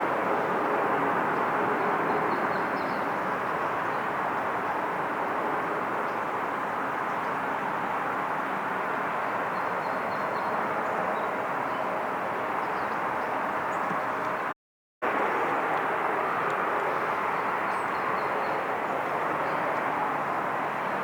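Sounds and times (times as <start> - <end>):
jet engines roaring: 15.0 - 21.0.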